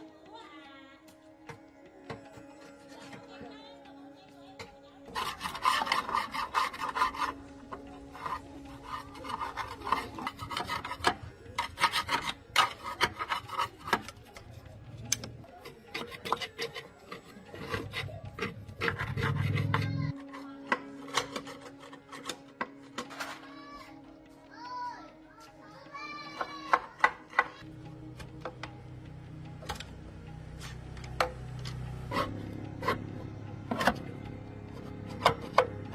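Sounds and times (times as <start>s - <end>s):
abrasive hand scraping: 5.1s - 14.6s, 15.6s - 20.1s.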